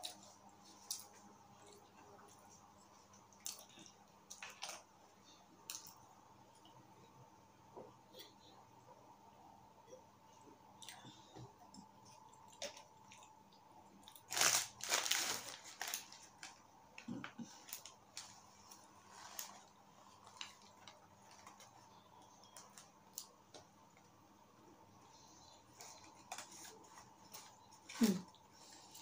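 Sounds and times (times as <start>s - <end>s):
crackling rustle: 14.1s - 23.3s.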